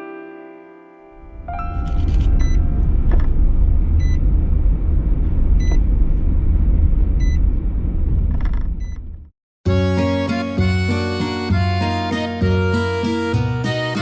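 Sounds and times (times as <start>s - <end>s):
vehicle engine rumbling: 1.2s - 9.3s.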